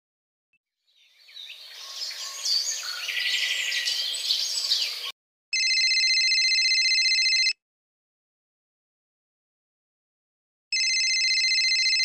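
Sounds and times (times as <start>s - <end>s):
birds chirping and whistling: 0.9s - 5.1s
old phone ringing: 5.6s - 7.6s, 10.7s - 12.0s.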